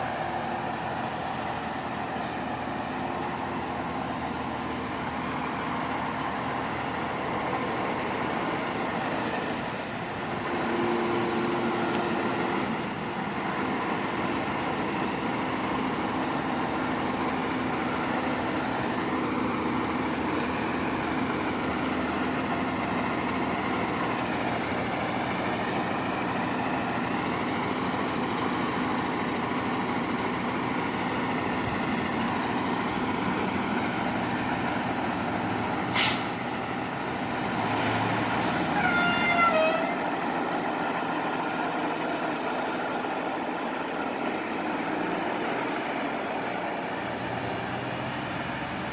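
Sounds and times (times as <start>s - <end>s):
diesel engine running: 0.0s - 48.9s
air brake hiss: 35.9s - 36.4s, 38.3s - 38.9s.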